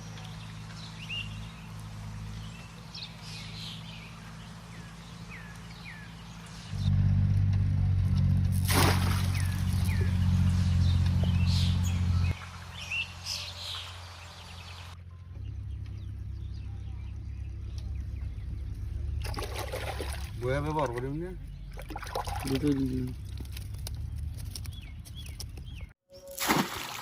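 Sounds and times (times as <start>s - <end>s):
small birds chirping: 0.0s - 7.0s, 9.2s - 26.3s
loud low hum: 3.9s - 13.1s, 14.8s - 25.0s.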